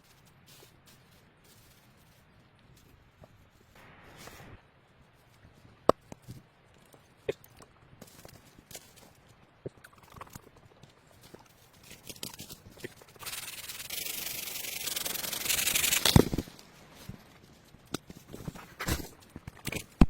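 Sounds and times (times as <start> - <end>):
scraping or rubbing: 9.9 - 19.9.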